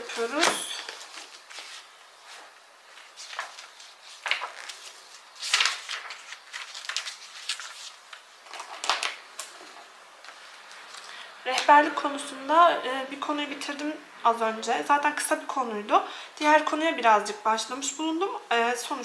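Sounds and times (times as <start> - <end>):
books and papers rustling: 0.0 - 11.2.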